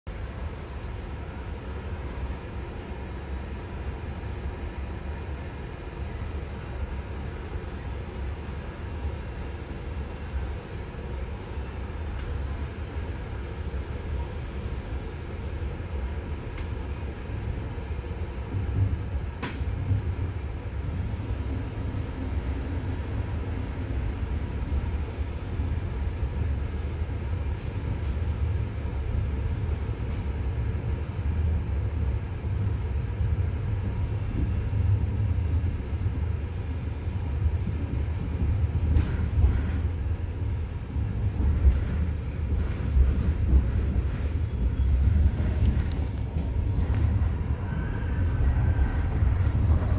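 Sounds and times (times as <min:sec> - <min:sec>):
train low rumble: 0:00.1 - 0:49.9.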